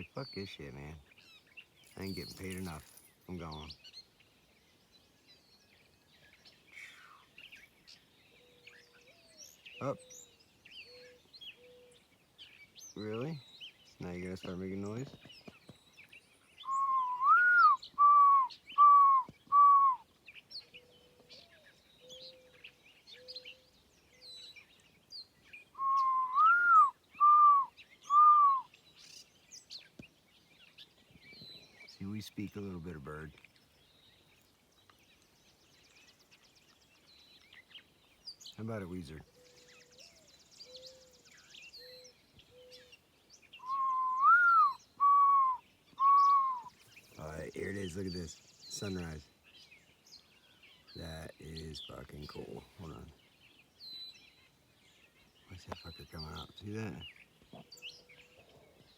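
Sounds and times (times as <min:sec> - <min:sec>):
faint bird chirps: 0:00.0 - 0:58.9
person whistling bird call: 0:16.6 - 0:20.0, 0:25.8 - 0:28.7, 0:43.6 - 0:46.8.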